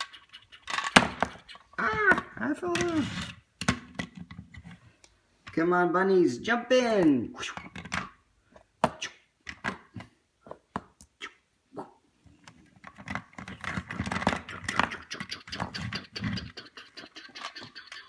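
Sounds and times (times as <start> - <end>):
toys rattling and scraping: 0.0 - 3.5, 12.4 - 18.0
plastic toys clicking and knocking: 0.0 - 4.8, 7.6 - 8.2, 8.9 - 11.0, 12.4 - 18.0.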